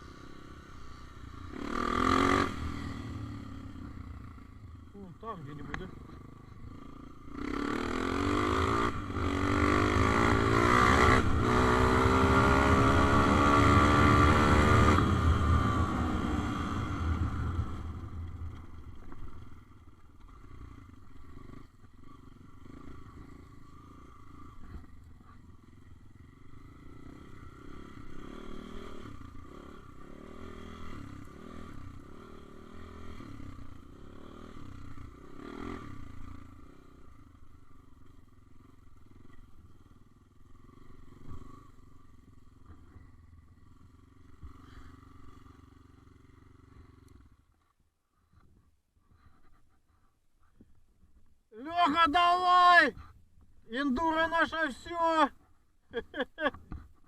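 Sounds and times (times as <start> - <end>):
faint engine running: 0.0 - 57.0
small motorbike engine revving: 1.5 - 3.7, 7.3 - 17.9.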